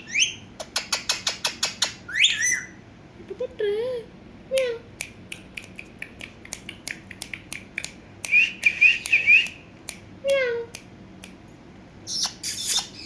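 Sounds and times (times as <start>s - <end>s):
parrot warbled chirps: 0.0s - 2.8s, 12.0s - 13.0s.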